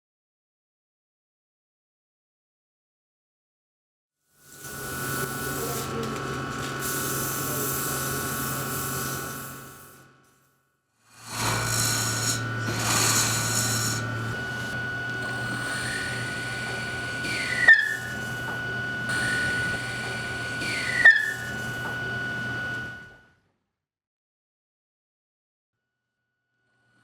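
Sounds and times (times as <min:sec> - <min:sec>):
tool cutting wood hiss: 0:04.4 - 0:10.4, 0:11.1 - 0:22.9
lathe humming and whining: 0:04.5 - 0:10.2, 0:11.1 - 0:23.2
sharp squeals: 0:15.6 - 0:18.3, 0:20.6 - 0:21.7.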